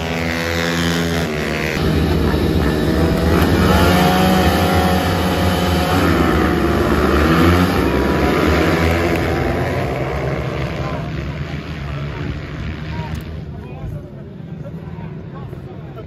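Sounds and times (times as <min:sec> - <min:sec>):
pit bike engines revving: 0:00.0 - 0:13.6.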